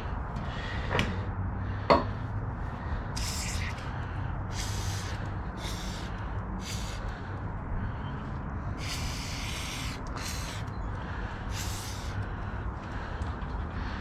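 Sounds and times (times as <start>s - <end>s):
aerosol can spraying: 3.2s - 3.8s, 4.5s - 7.0s, 8.8s - 10.6s, 11.5s - 12.1s.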